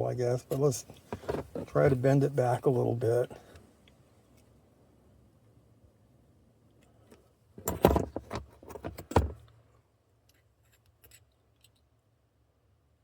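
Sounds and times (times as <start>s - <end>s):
metal clinking and rattling: 7.6s - 9.4s.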